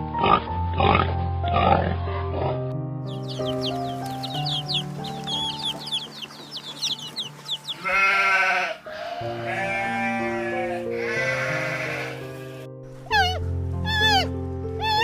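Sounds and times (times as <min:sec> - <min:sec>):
background music: 0:00.0 - 0:15.0
rapid high chirps: 0:03.1 - 0:07.8
livestock bleating: 0:07.7 - 0:12.7.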